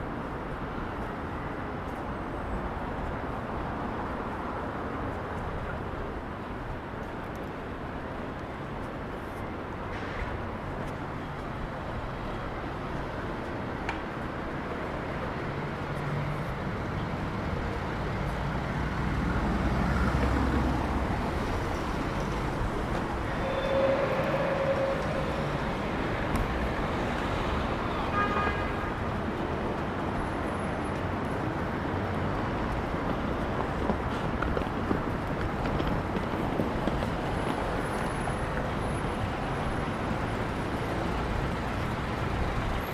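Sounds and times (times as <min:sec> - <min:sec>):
street traffic: 0:00.0 - 0:42.9
short pitched tone: 0:23.2 - 0:27.0.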